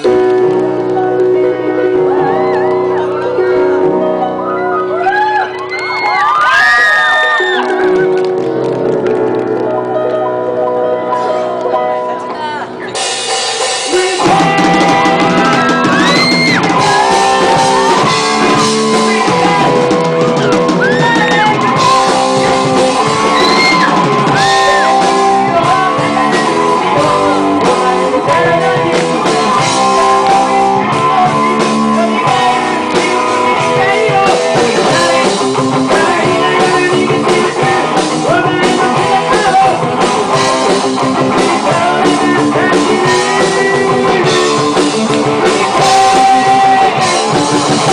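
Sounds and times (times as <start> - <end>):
rock band playing: 0.0 - 47.9
person singing: 11.0 - 47.9.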